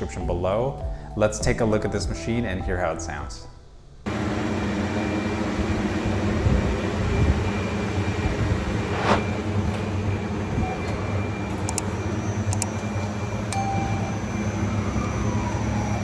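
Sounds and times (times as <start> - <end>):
cnc machine hum: 4.1 - 16.0
brief hiss: 8.8 - 9.3.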